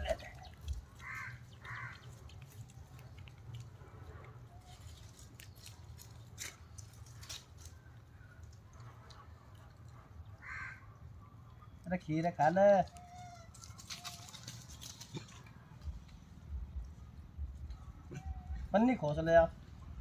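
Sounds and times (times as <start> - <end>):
low steady hum: 0.0 - 20.0
monkeys eating with rustles: 0.0 - 20.0
monkey call: 17.8 - 18.8.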